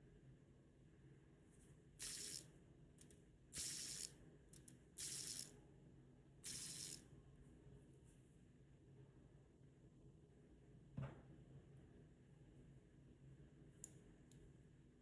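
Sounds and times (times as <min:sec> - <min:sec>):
spinning ring ratchet clicking: 0:02.0 - 0:02.4, 0:03.6 - 0:05.5, 0:06.5 - 0:07.0.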